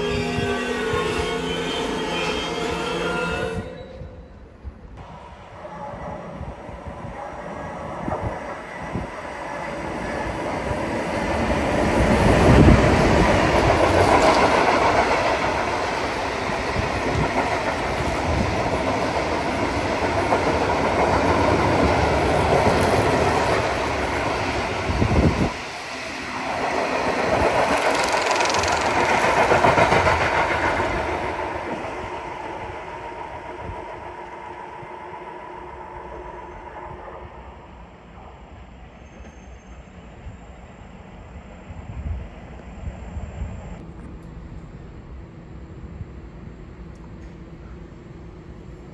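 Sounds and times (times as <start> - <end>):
train wheels knocking: 27.0 - 31.0.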